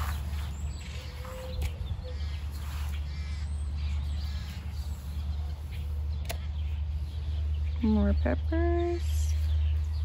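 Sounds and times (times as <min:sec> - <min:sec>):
birds chirping and calling: 0:00.0 - 0:10.0.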